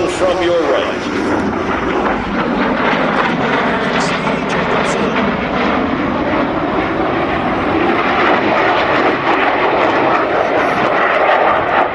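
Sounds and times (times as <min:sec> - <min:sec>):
jet engines rushing: 0:00.0 - 0:11.9.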